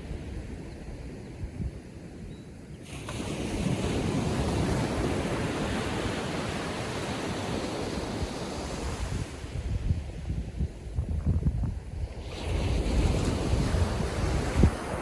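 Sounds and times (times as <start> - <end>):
waves washing up a beach: 2.8 - 10.9, 12.0 - 15.0.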